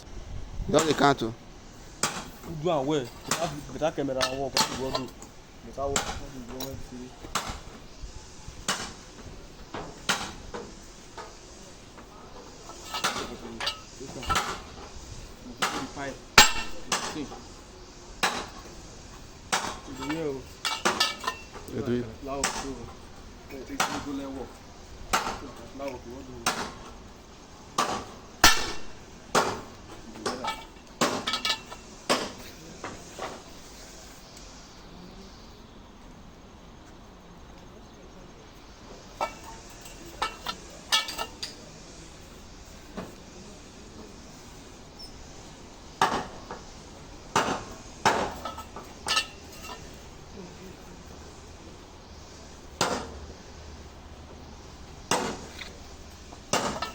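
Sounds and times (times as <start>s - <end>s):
metal-on-metal clanks: 0.7s - 17.6s, 18.2s - 33.8s, 39.0s - 41.8s, 42.6s - 50.3s, 55.0s - 56.9s
hammer striking steel: 2.0s - 5.3s, 12.6s - 14.9s, 15.6s - 17.5s, 19.5s - 21.7s, 27.8s - 32.5s, 39.1s - 41.7s, 47.3s - 50.1s, 56.5s - 56.9s.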